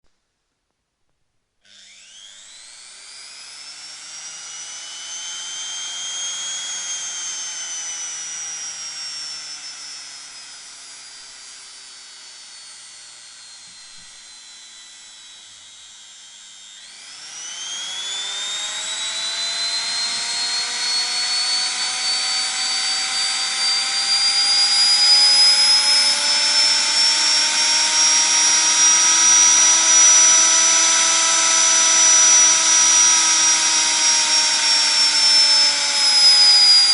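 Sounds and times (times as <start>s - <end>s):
washing machine motor whining: 15.4s - 36.9s.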